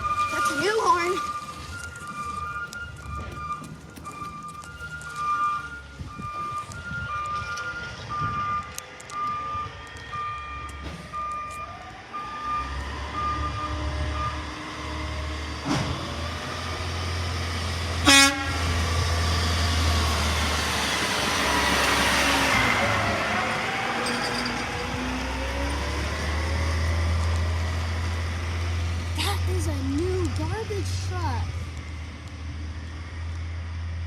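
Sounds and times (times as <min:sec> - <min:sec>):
reversing alarm beeping: 0:00.0 - 0:15.3
truck engine revving: 0:12.1 - 0:34.0.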